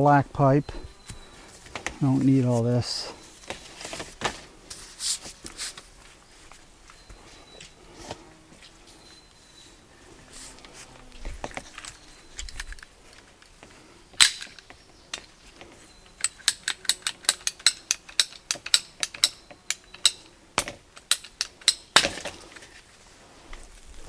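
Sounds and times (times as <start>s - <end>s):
pipe cutter clicking: 16.2s - 20.2s.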